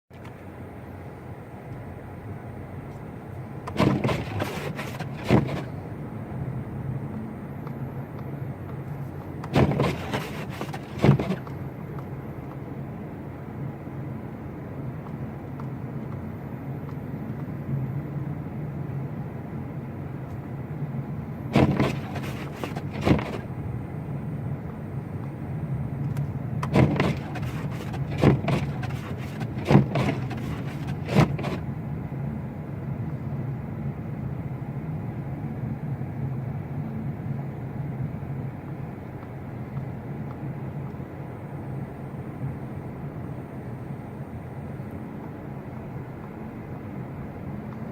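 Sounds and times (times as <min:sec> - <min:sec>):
engine and road hum: 0:00.1 - 0:47.9
sharp knocks and thumps: 0:03.7 - 0:05.7, 0:09.4 - 0:11.5, 0:21.6 - 0:23.4, 0:26.6 - 0:31.6.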